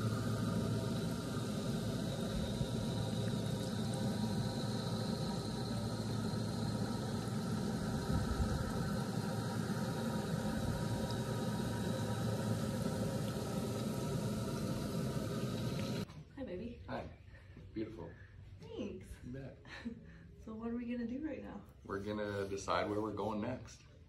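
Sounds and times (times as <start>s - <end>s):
motor humming: 0.0s - 16.0s.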